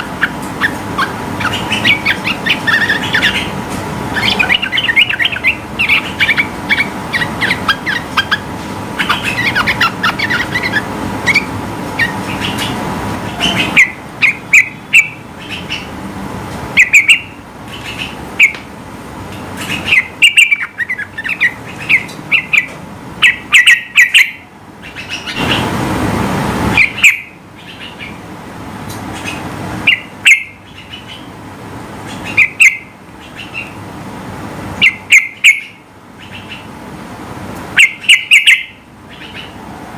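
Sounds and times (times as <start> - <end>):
rushing noise: 0.0 - 14.5, 24.5 - 28.8
bird chirping: 0.0 - 15.9, 16.8 - 18.6, 19.6 - 25.7, 26.7 - 28.2, 28.9 - 31.4, 32.0 - 33.8, 34.8 - 36.7, 37.8 - 39.6.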